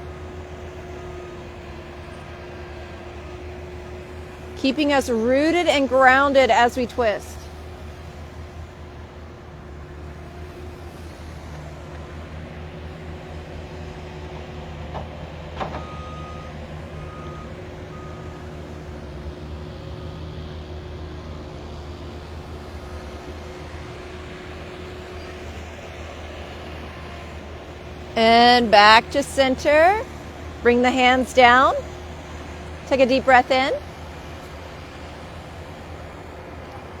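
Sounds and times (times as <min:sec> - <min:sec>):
construction machinery rumbling: 0:00.0 - 0:37.0
reversing alarm beeps: 0:15.8 - 0:18.5.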